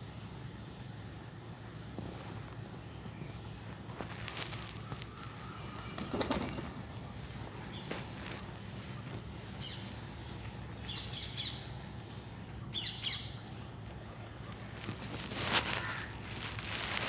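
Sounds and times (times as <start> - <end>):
sparrows chirping: 0.0 - 17.0
harsh bird call: 15.2 - 17.0.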